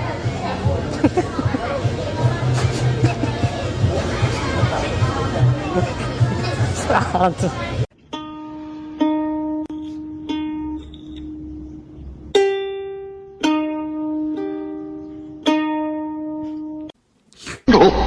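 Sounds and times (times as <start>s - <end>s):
plucked ukulele notes: 7.9s - 17.0s.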